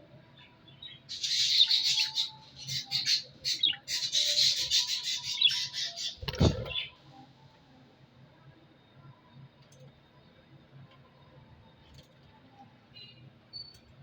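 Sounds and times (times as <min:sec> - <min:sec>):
parrots squawking and chattering: 0:01.1 - 0:06.9.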